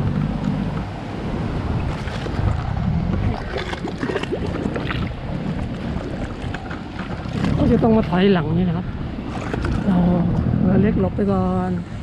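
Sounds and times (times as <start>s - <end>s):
boat motor rumble: 0.0s - 12.0s
water splashing and lapping: 0.0s - 12.0s
wind on microphone: 0.0s - 12.0s.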